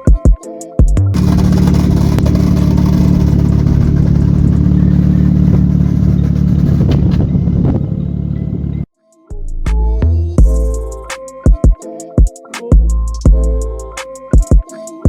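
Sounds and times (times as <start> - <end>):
car engine running steadily: 1.2 - 8.8.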